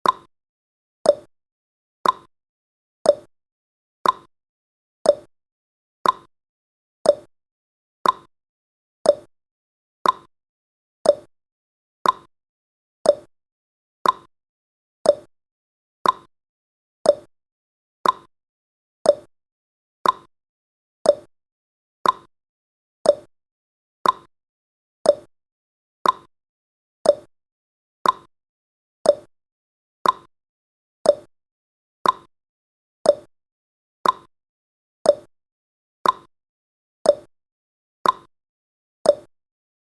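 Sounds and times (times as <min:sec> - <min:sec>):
countdown timer ticking: 0:07.1 - 0:07.3, 0:09.1 - 0:09.3, 0:11.1 - 0:11.3, 0:13.1 - 0:13.3, 0:15.1 - 0:15.3, 0:17.1 - 0:17.3, 0:19.1 - 0:19.3, 0:21.1 - 0:21.3, 0:23.1 - 0:23.3, 0:24.0 - 0:24.3, 0:25.1 - 0:25.3, 0:26.0 - 0:26.3, 0:27.1 - 0:27.3, 0:29.1 - 0:29.3, 0:30.0 - 0:30.3, 0:31.1 - 0:31.3, 0:32.0 - 0:32.3, 0:33.1 - 0:33.3, 0:34.0 - 0:34.3, 0:35.1 - 0:35.3, 0:36.0 - 0:36.3, 0:37.1 - 0:37.3, 0:38.0 - 0:38.3, 0:39.1 - 0:39.3.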